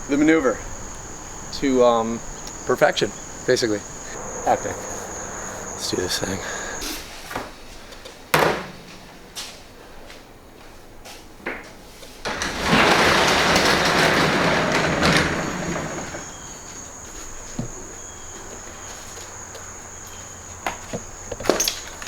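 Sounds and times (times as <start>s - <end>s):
dirt bike engine passing: 0.0s - 6.9s.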